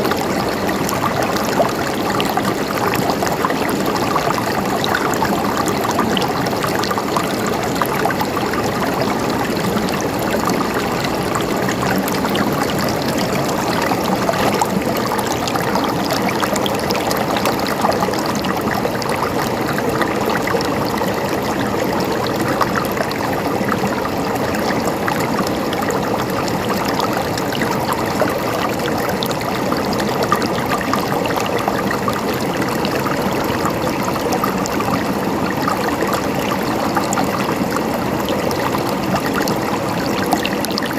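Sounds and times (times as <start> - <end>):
river flowing over rocks: 0.0 - 40.9.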